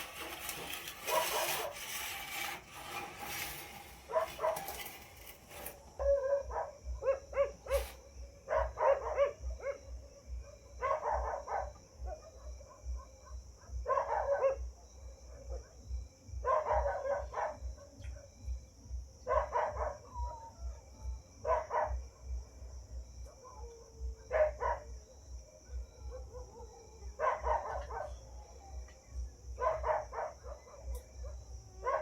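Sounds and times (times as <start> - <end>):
dog barking: 6.0 - 15.8, 16.4 - 18.3, 19.2 - 20.1, 21.4 - 22.3, 23.3 - 25.0, 26.0 - 28.2, 29.6 - 32.0.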